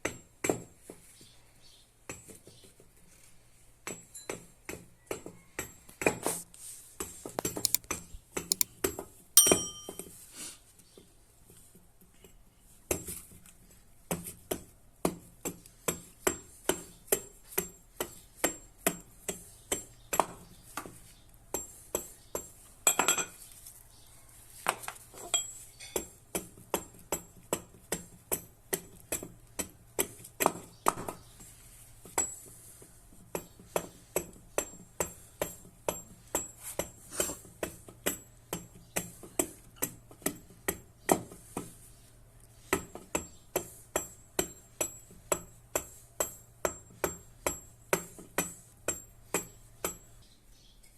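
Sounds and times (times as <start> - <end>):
hammer blows on metal: 9.4 - 10.0.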